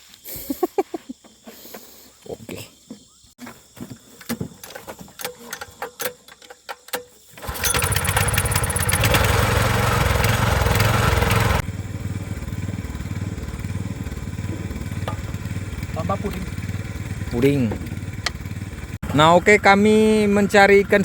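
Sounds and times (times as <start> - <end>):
boat motor running: 7.4 - 21.0.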